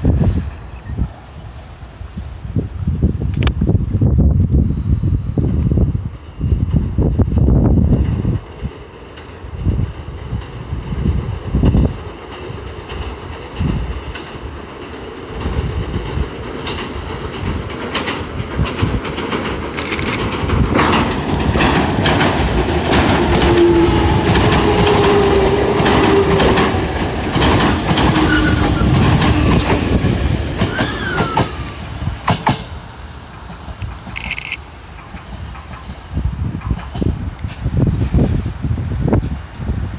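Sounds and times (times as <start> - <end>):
wind on microphone: 0.0 - 14.6, 15.3 - 32.8, 35.2 - 39.9
train rumbling on bridge: 0.0 - 39.9
wheel clacks over rail joints: 12.2 - 29.9
wheel squeal: 28.2 - 29.6.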